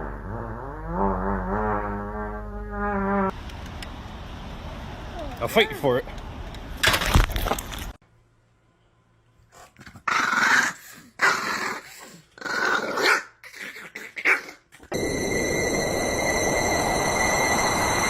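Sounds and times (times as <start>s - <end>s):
dog growling and barking: 9.7s - 14.9s
high held whine: 14.9s - 18.0s
steady rushing noise: 14.9s - 18.0s.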